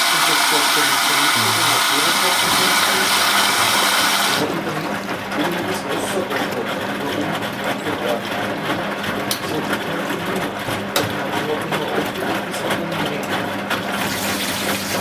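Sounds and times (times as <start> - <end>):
water rushing in: 0.0 - 5.3
washing machine tumbling: 0.0 - 15.0.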